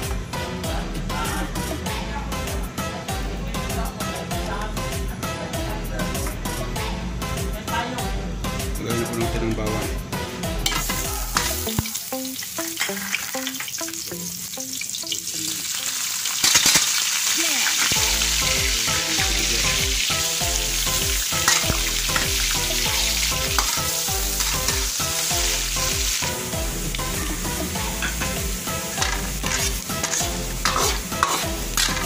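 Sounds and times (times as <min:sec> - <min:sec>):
garlic and onion sizzling in oil: 0:10.6 - 0:32.0.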